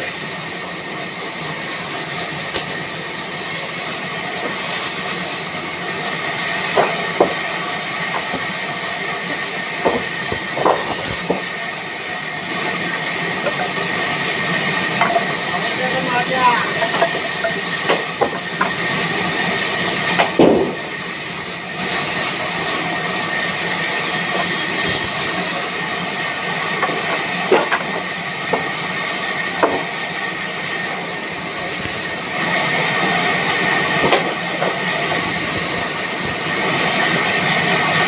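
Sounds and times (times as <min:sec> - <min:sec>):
band saw cutting wood: 0:00.0 - 0:38.0
sharp knocks: 0:20.2 - 0:20.8.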